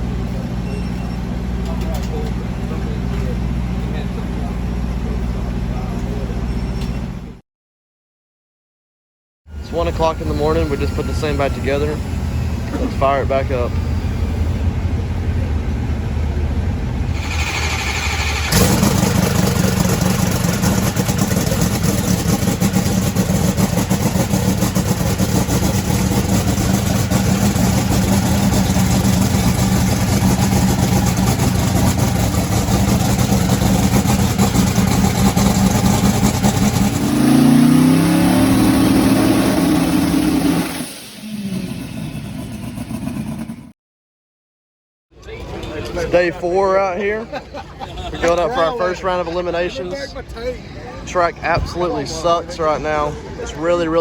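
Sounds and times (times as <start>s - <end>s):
drag racing engine running: 0.0s - 6.6s, 9.5s - 43.7s
engine revving: 9.6s - 43.7s
engine cranking whir: 17.0s - 43.7s.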